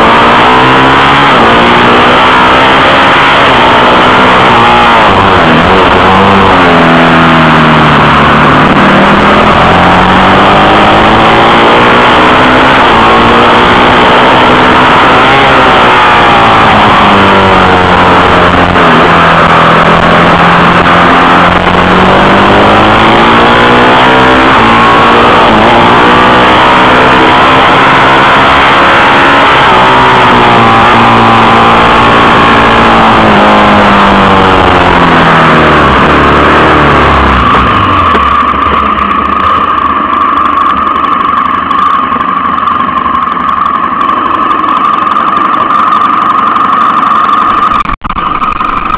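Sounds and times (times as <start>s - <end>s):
motorcycle engine revving hard: 0.0s - 48.9s.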